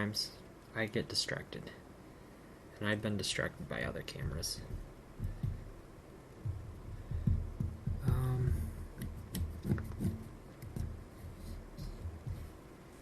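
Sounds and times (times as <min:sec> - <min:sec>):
soft knocks and thuds: 0:04.2 - 0:05.8, 0:06.4 - 0:12.6
person humming: 0:07.9 - 0:08.9.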